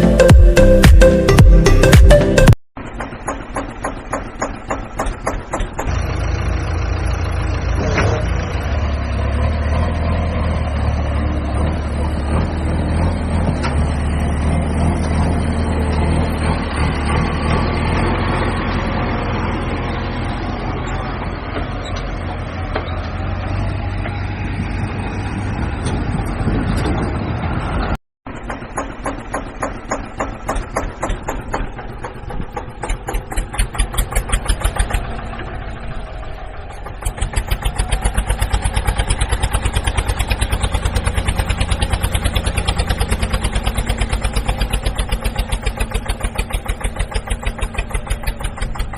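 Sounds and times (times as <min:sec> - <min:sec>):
heavy vehicle engine droning: 0:00.0 - 0:48.9
quick regular pulsing: 0:28.8 - 0:35.2, 0:36.9 - 0:48.9.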